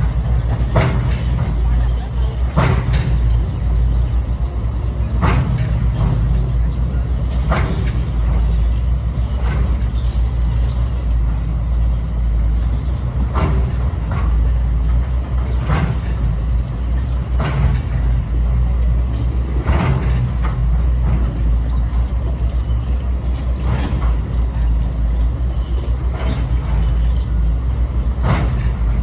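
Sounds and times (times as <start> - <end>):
construction machinery engine drone: 0.0 - 29.0.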